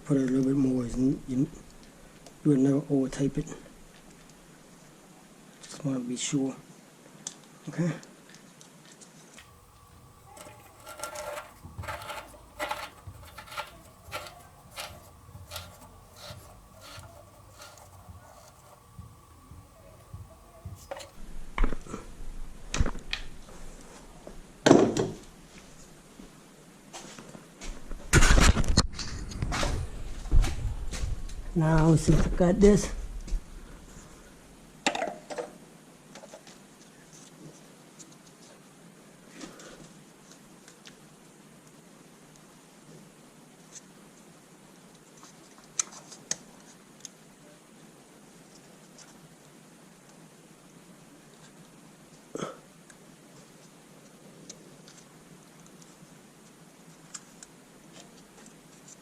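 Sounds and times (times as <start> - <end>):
tools scraping clicks: 9.4 - 21.2.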